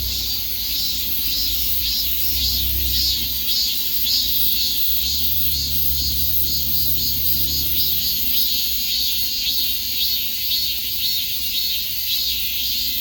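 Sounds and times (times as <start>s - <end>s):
cicadas singing: 0.0s - 13.0s.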